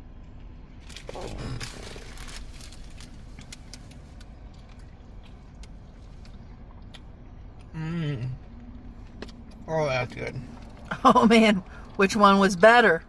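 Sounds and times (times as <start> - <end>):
car interior rumble: 0.0 - 13.0
wrapper crinkling: 0.8 - 4.3
food handling clicks and rustles: 0.8 - 6.4.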